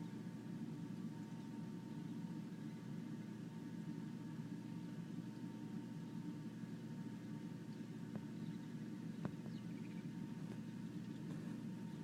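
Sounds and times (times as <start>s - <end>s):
steady low hum: 0.0s - 12.0s
small birds chirping: 1.2s - 3.0s, 4.7s - 12.0s.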